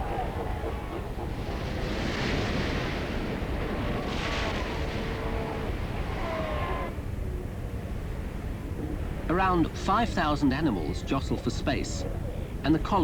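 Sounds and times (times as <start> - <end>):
seals crying: 0.0 - 2.1, 3.3 - 7.1.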